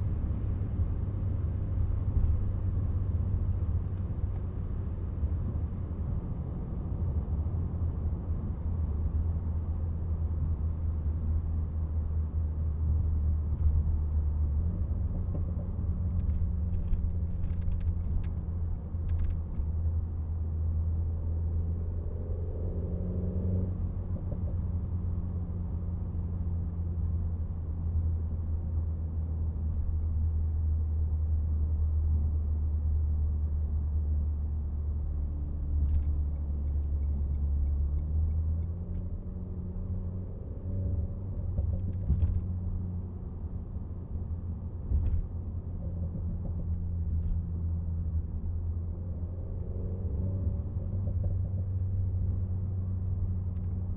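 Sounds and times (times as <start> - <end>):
car engine cruising drone: 12.2 - 53.9.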